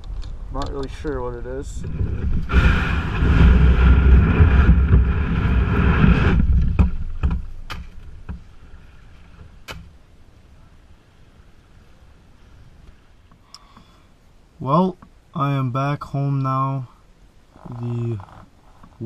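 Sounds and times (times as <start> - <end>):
wind and water rumble on microphone: 0.0 - 9.6
sharp knocks and clicks: 6.4 - 8.5.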